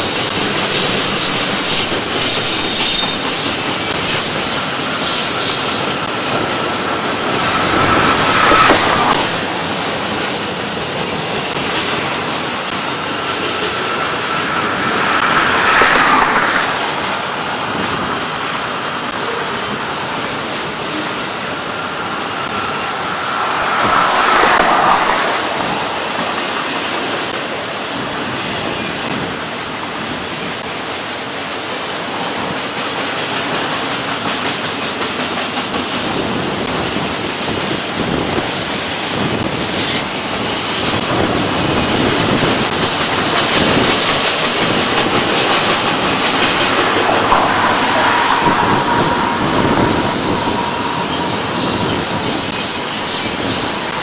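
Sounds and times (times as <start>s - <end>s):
freight train wheels clattering: 0.0s - 29.4s, 31.9s - 54.0s
faint wheel squeal: 45.8s - 54.0s.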